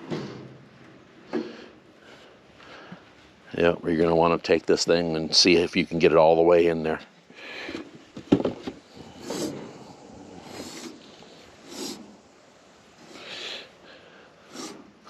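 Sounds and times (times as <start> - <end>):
short rasping noises: 8.9 - 12.2.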